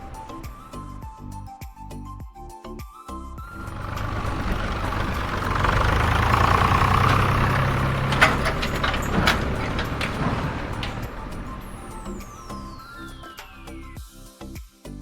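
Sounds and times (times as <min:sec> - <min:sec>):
engine idling: 0:00.0 - 0:01.0, 0:03.5 - 0:14.0.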